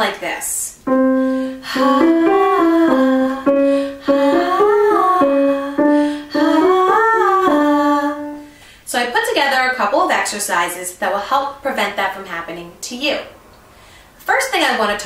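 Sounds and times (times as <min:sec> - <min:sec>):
woman singing breathily: 0:01.0 - 0:08.6.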